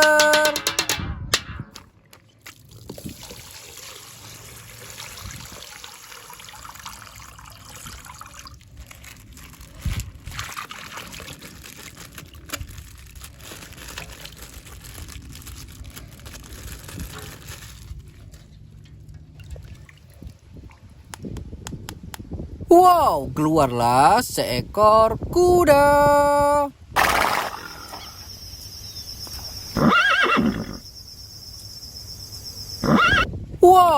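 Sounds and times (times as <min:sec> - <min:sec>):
water pouring from plastic bag: 0:02.3 - 0:18.8.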